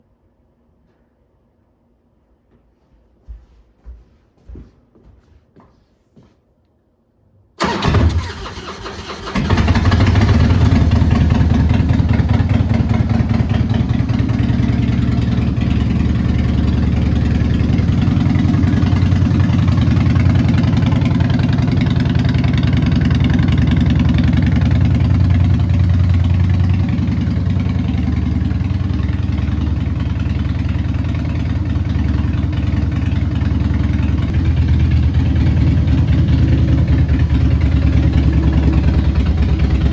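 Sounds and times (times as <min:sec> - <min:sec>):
electric starter cranking: 0:07.6 - 0:10.2
motorcycle engine idling: 0:09.3 - 0:39.9.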